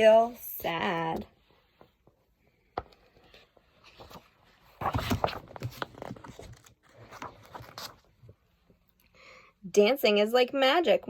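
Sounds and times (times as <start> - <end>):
paper page rustling: 3.0 - 8.4.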